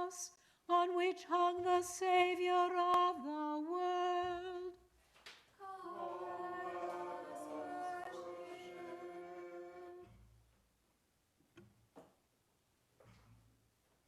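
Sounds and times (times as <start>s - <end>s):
group singing a chant: 5.6s - 10.1s.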